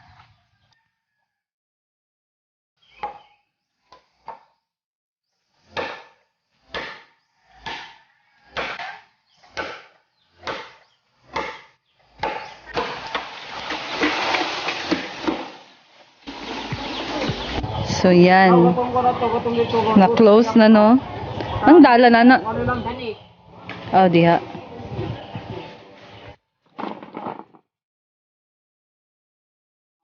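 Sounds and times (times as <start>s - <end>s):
clattering and rustling: 26.7s - 27.6s.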